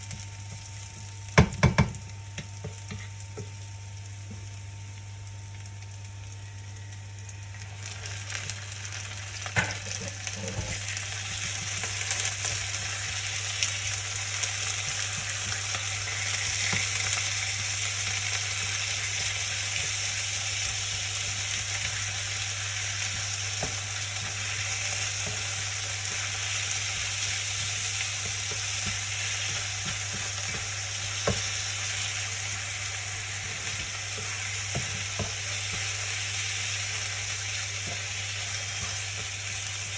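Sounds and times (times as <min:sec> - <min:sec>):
food sizzling in a pan: 0:00.0 - 0:39.9
utensil knocking against pan: 0:01.4 - 0:02.0.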